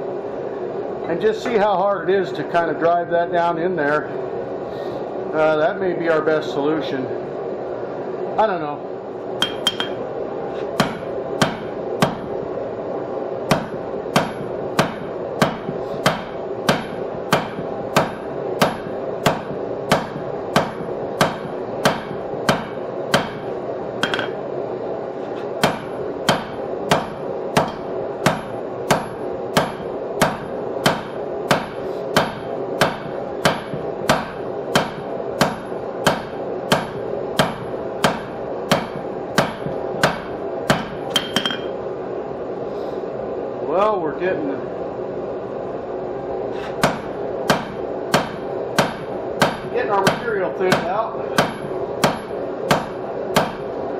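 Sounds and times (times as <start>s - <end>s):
hammer striking steel on anvil: 9.4s - 10.0s, 10.8s - 12.3s, 13.5s - 23.4s, 24.0s - 24.4s, 25.6s - 41.8s, 46.8s - 53.6s.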